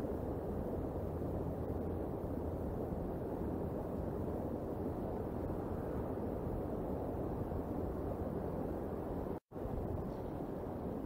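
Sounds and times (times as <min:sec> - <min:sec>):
wind noise: 0:00.0 - 0:11.0.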